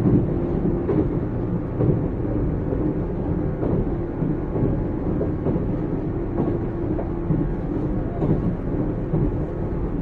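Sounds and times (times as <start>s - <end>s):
knocks from the track: 0.0s - 3.0s, 3.6s - 7.6s
steady train hum: 0.0s - 10.0s
train wheels rumbling on rail: 0.0s - 10.0s.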